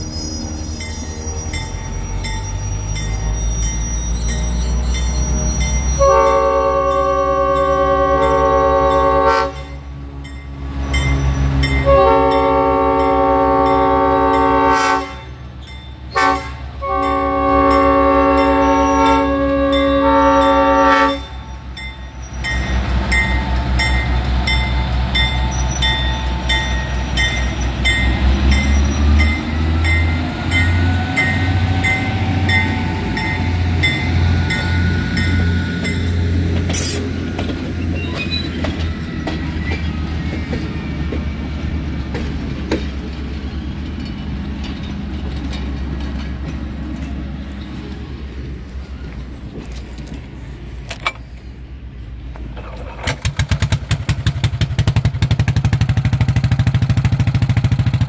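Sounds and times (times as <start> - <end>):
locomotive air horn: 5.8 - 9.8, 11.8 - 15.3, 16.1 - 21.5
wheels clicking over rails: 35.8 - 48.0, 52.3 - 58.0.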